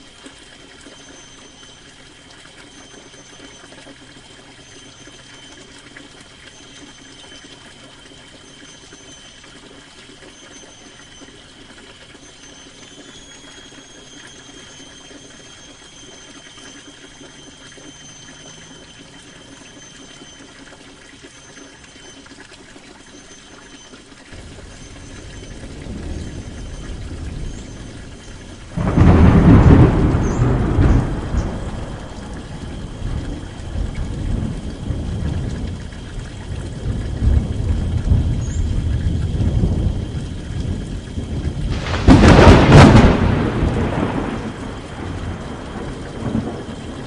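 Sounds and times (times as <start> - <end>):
rain on a canvas tent: 0.0 - 47.0
distant thunder rumbling: 24.4 - 47.0.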